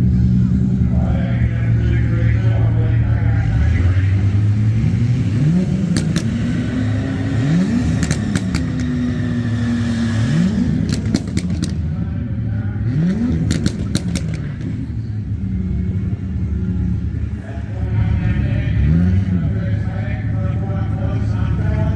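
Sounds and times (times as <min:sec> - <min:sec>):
car engine revving: 0:00.0 - 0:21.9
low rumble of engines: 0:00.0 - 0:21.9
sharp cracks: 0:08.0 - 0:09.0, 0:10.8 - 0:11.9, 0:13.4 - 0:14.7.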